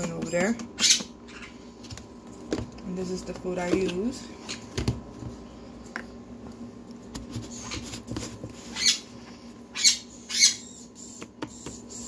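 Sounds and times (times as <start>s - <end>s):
baby parrot raspy calls: 0.8s - 1.6s, 8.7s - 9.1s, 9.7s - 12.0s.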